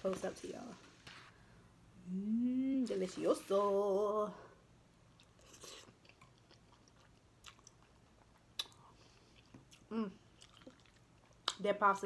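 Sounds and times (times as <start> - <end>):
person humming: 2.0 - 2.9, 9.9 - 10.2
person chewing pasta: 5.1 - 11.6
wet mouth smacks and clicks: 8.6 - 8.9.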